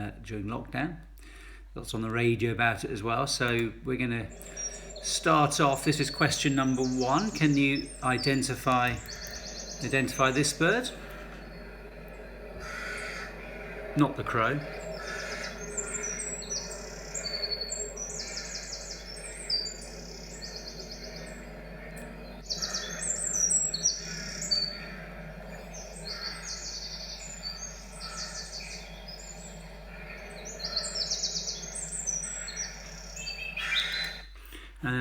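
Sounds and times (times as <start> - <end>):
songbird singing: 0.0 - 35.0.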